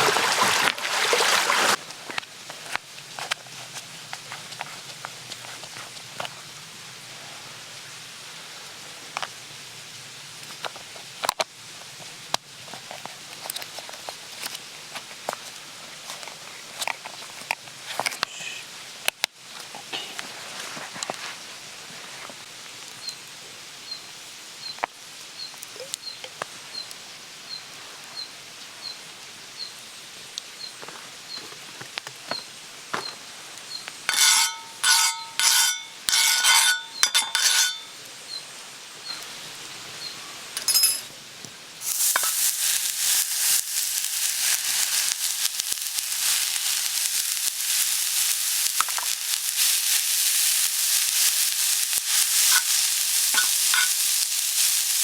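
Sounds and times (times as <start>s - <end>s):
food sizzling on hot griddle: 1.0s - 55.0s
ringing metal clinks: 40.6s - 41.1s
faint crackling: 41.8s - 55.0s.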